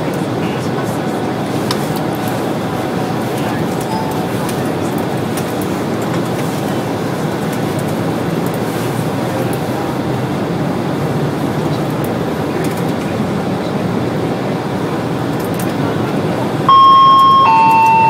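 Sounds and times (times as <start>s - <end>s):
train running noise: 0.0s - 18.0s
two-note announcement chime: 3.6s - 4.8s, 16.7s - 18.0s.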